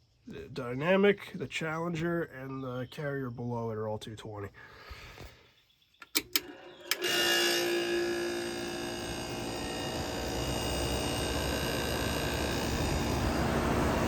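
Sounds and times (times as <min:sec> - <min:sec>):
air conditioner switch click: 0:06.0 - 0:07.2.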